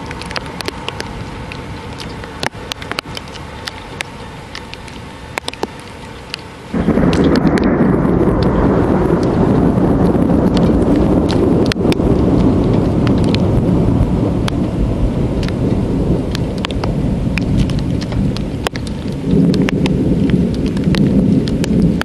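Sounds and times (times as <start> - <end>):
heavy rain: 0.0 - 22.0
raindrops ticking close by: 0.0 - 22.0
thunder rumbling: 0.0 - 22.0.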